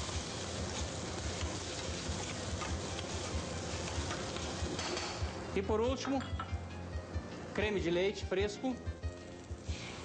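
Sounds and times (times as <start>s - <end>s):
butter sizzling in a pan: 0.0s - 5.4s, 8.4s - 10.0s
light ticks of stirring: 0.7s - 3.2s, 3.8s - 4.6s.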